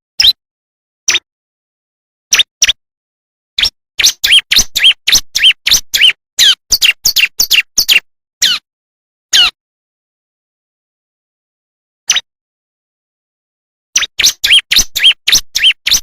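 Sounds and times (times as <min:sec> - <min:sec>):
high sharp bird chirps: 0:00.2 - 0:00.4, 0:02.3 - 0:02.8, 0:03.6 - 0:08.6, 0:12.1 - 0:12.3, 0:14.0 - 0:16.0.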